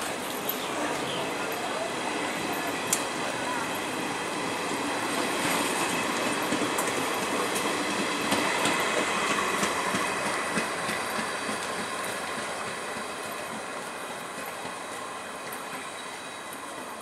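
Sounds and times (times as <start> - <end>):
train wheels clicking over rail joints: 4.6 - 17.0.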